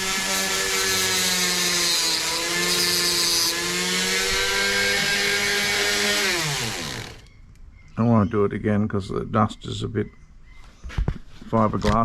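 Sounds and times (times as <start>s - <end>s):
cutting wheel grinding hiss: 0.0s - 7.3s
rotary tool whining: 0.0s - 7.3s.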